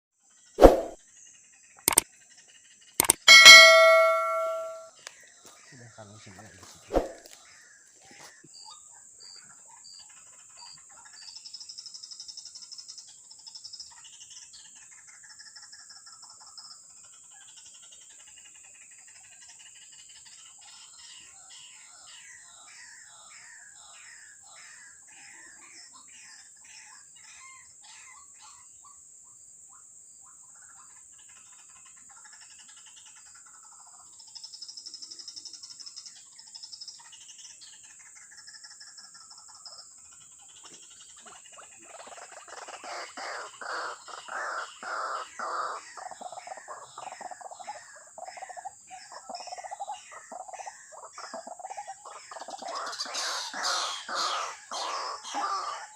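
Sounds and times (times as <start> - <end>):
rapid animal calls: 51.1 - 55.9.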